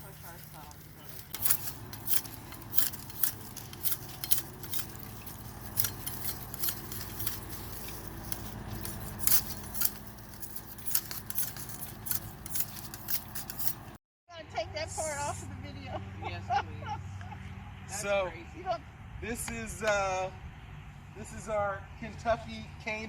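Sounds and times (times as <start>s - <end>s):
sharp clicks and crackles: 0.0s - 14.0s.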